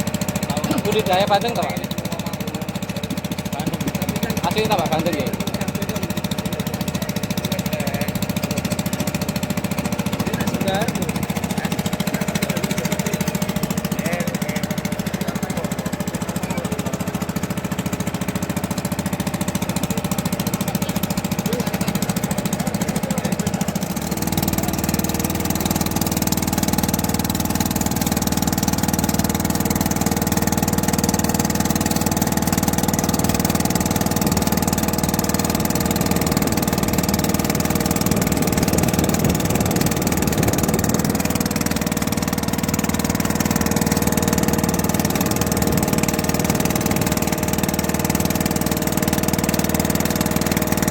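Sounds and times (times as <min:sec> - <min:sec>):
boat engine running: 0:00.0 - 0:50.9.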